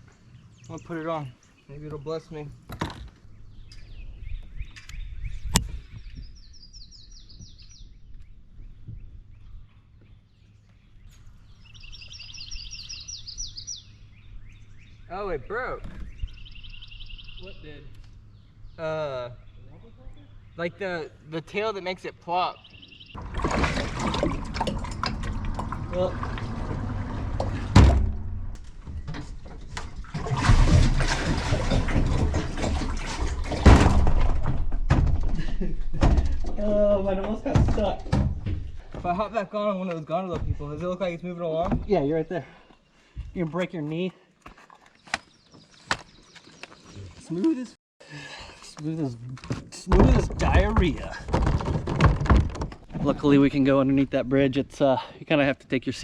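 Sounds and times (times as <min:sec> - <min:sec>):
songbird singing: 0:00.0 - 0:23.2, 0:35.5 - 0:47.8
kayak hull scraping over gravel: 0:23.2 - 0:27.8, 0:29.3 - 0:33.7
water rushing: 0:23.2 - 0:28.4, 0:30.0 - 0:34.0
low steady rumble: 0:23.2 - 0:37.6.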